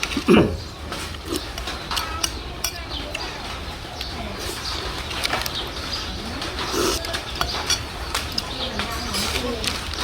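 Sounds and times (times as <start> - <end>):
utensils and shells clinking on dishes: 0.0 - 10.0.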